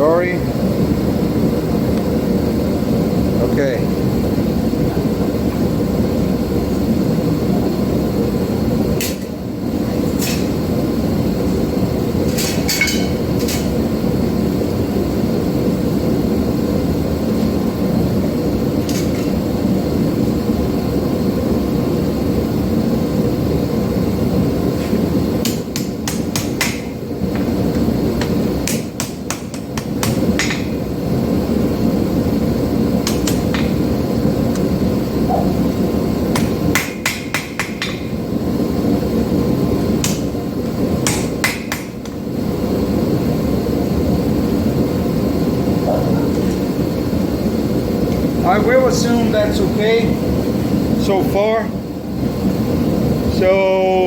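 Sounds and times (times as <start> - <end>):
hammer striking steel on anvil: 12.3 - 13.7, 25.4 - 27.0, 28.2 - 30.8, 36.3 - 38.1, 40.0 - 40.3, 41.0 - 42.2.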